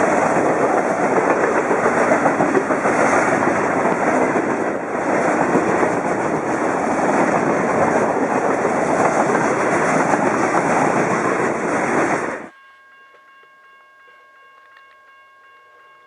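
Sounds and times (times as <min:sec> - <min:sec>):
train wheels clattering over rails: 0:00.0 - 0:12.5.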